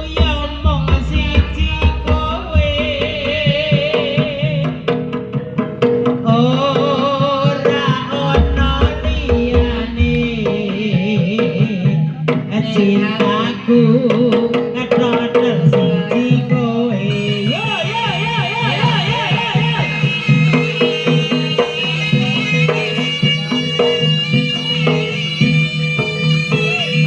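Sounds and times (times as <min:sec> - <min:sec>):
deep low drum strokes: 0:00.0 - 0:11.8
hand drums beating: 0:00.0 - 0:27.0
wavering melody line: 0:15.9 - 0:27.0.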